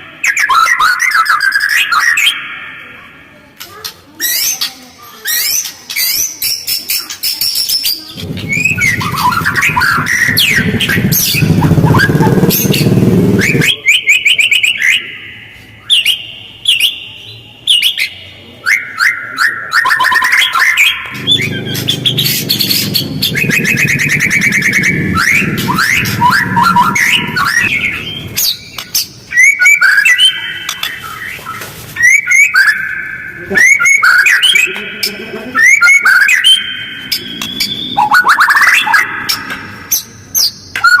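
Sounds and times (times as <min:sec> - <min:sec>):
songbird whistling and trilling: 0:04.2 - 0:34.7, 0:35.6 - 0:41.0
harsh rasping bird notes: 0:08.1 - 0:13.7, 0:21.1 - 0:29.1.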